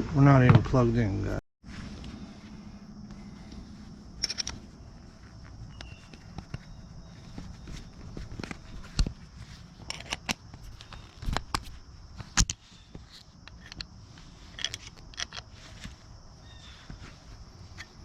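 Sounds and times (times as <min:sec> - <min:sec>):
tools clicking and knocking: 0:09.8 - 0:12.6, 0:13.4 - 0:13.9, 0:14.5 - 0:15.5.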